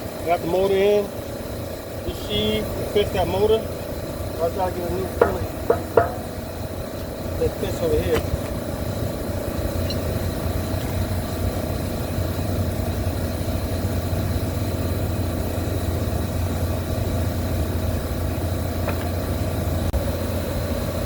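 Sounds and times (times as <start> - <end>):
machinery humming: 0.0 - 21.0
steady high tone: 0.3 - 10.6.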